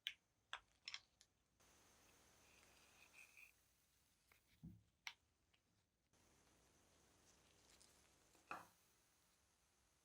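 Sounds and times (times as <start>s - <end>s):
faint hiss: 1.6s - 4.7s, 6.1s - 10.0s.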